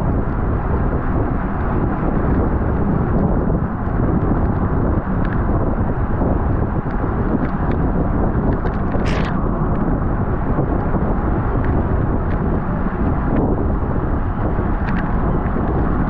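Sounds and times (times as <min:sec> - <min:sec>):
wind buffeting microphone: 0:00.0 - 0:16.0
brief hiss: 0:09.0 - 0:09.4.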